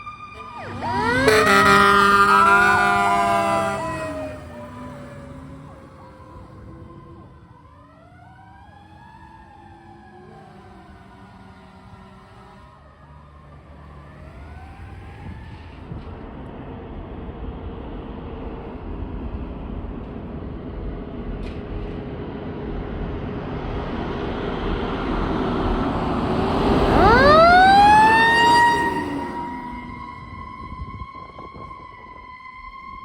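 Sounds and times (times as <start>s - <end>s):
siren sweeping up: 0.0s - 11.4s, 26.2s - 33.0s
fire engine engine and road noise: 0.0s - 33.0s.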